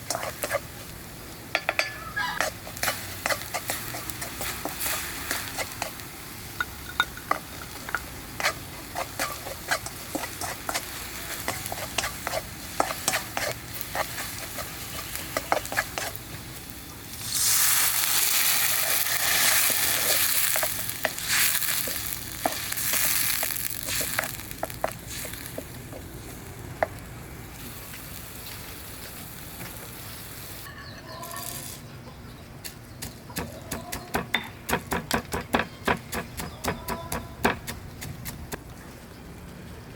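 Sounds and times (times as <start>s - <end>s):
food frying in hot oil: 2.4s - 26.0s.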